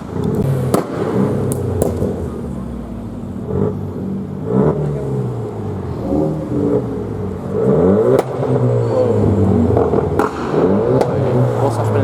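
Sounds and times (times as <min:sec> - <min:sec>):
sharp crack: 0:00.0 - 0:03.8, 0:06.5 - 0:12.0
car engine revving: 0:00.0 - 0:12.0.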